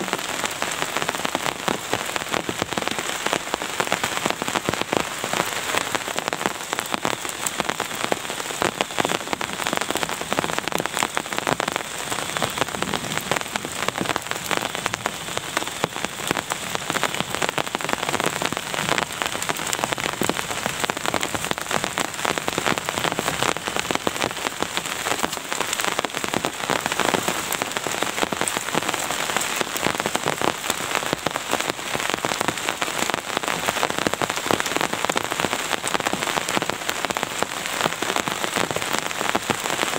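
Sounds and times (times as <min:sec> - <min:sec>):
steady rain drops: 0:00.0 - 0:39.9.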